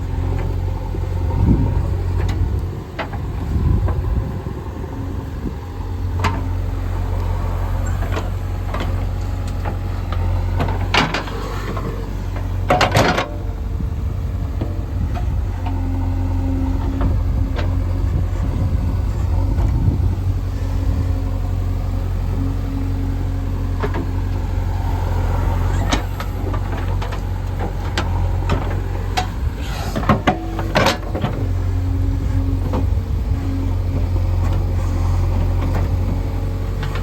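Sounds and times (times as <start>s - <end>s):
diesel engine running: 0.0s - 37.0s
machine clanks and knocks: 7.9s - 13.5s, 25.8s - 31.5s.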